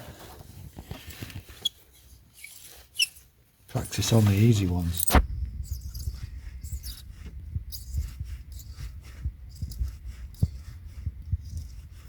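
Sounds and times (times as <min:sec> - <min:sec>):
metal tool scraping and clicking: 0:03.8 - 0:07.0.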